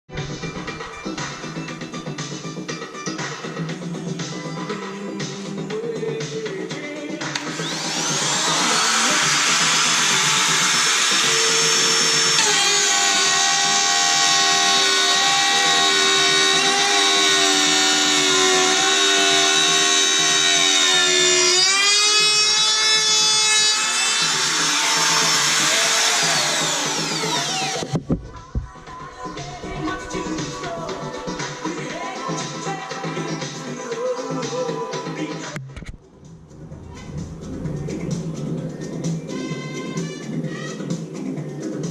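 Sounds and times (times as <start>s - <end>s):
wood router whining: 7.3s - 28.1s.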